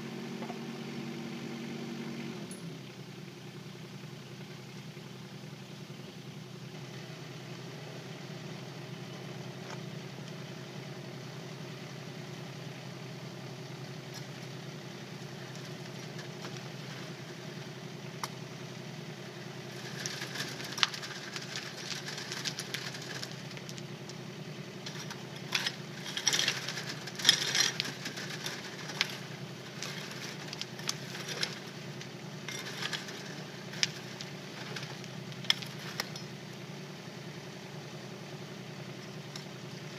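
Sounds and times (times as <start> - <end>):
diesel engine running: 0.0 - 39.9
stony soil rattling: 14.0 - 37.8.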